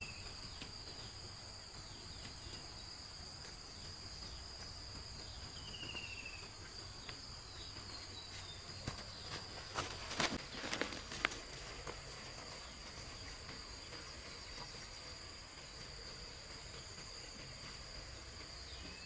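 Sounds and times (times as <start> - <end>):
insects chirping: 0.0 - 19.0
bird trill: 5.1 - 11.5.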